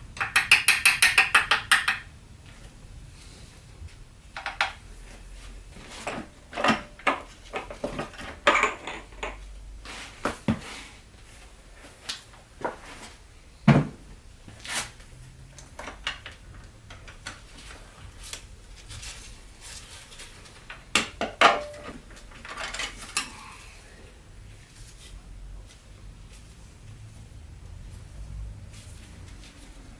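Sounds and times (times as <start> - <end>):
tools clinking and clicking: 0.2 - 2.1, 4.4 - 4.8.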